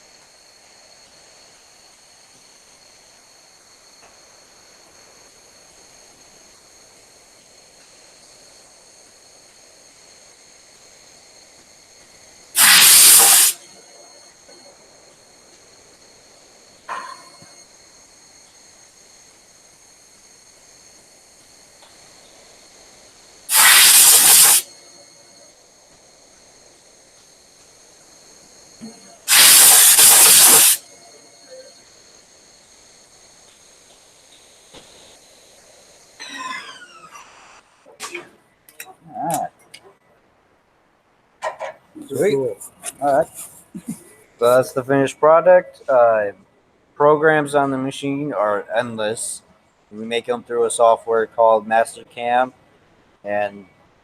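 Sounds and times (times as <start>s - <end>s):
faint high-pitched whine: 0.0s - 54.0s
compressed air hissing: 12.6s - 13.6s, 23.5s - 24.8s, 28.8s - 31.7s.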